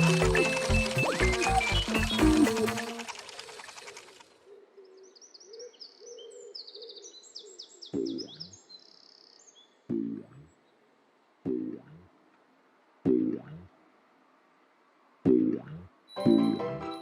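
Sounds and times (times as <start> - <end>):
birds twittering: 0.0 - 10.8.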